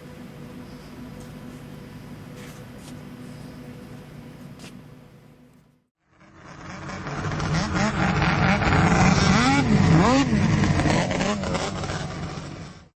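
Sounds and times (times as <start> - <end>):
snowmobile engine revving: 6.1 - 12.9.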